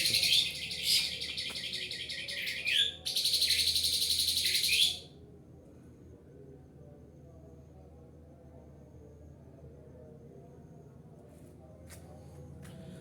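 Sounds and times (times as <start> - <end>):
bird buzzy trill: 0.0 - 5.0.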